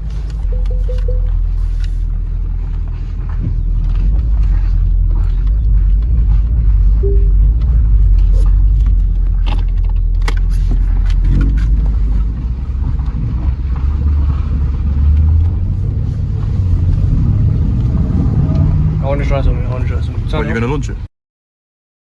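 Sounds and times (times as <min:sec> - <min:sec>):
car engine rumble: 0:00.0 - 0:21.1.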